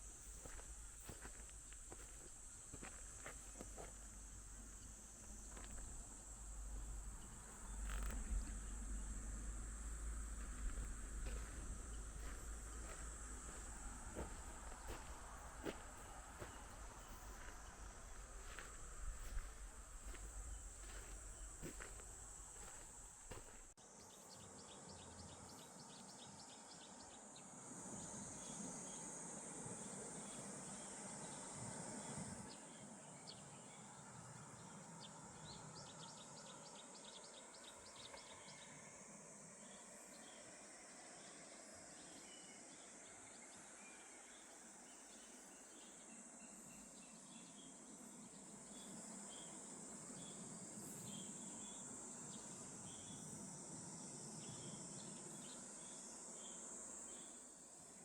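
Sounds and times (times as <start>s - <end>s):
insect chorus chirping: 0.0s - 58.0s
low rumble: 4.0s - 23.1s.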